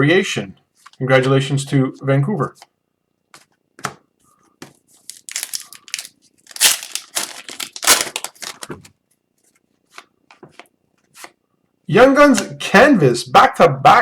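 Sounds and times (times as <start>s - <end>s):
plastic wrapper tearing and crumpling: 5.0s - 8.9s.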